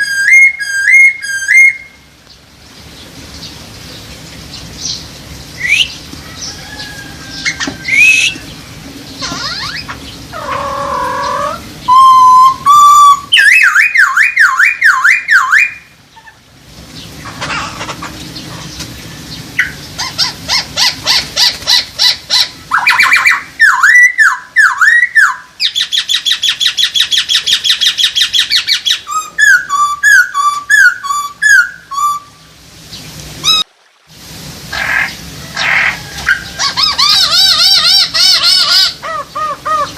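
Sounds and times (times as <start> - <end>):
bird singing whistled phrases: 0.0 - 2.0, 5.6 - 6.0, 7.4 - 8.5, 11.2 - 16.3, 22.7 - 32.4.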